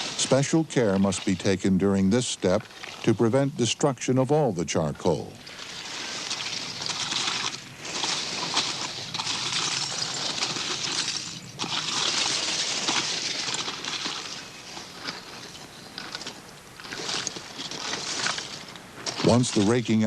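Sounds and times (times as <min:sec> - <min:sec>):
shovels scraping through charcoal: 0:00.0 - 0:02.6, 0:05.4 - 0:20.0.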